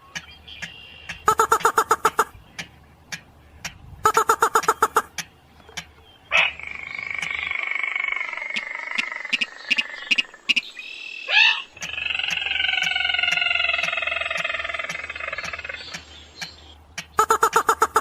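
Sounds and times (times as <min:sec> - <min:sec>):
regular ticking: 0:00.0 - 0:07.4, 0:11.7 - 0:18.0
crake calling: 0:00.0 - 0:18.0.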